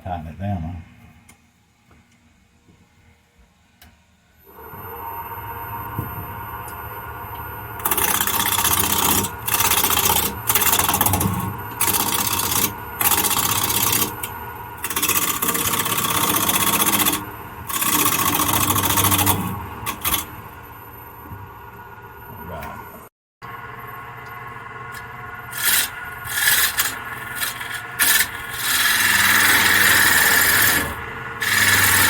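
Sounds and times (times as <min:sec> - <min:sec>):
wood lathe humming: 0:04.5 - 0:22.2, 0:23.6 - 0:32.0
turning tool cutting wood: 0:07.8 - 0:20.7, 0:24.9 - 0:32.0.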